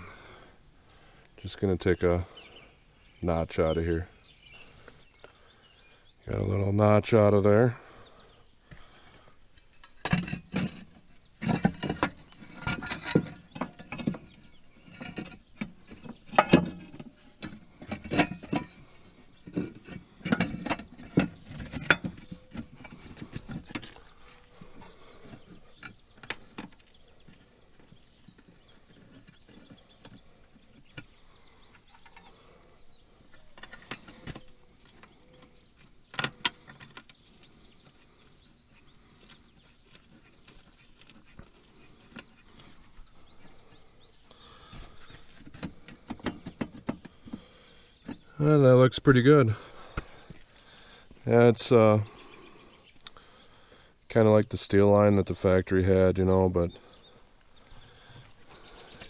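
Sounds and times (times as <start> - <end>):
hand tools and metal parts clinking: 9.5 - 32.6, 33.2 - 48.5.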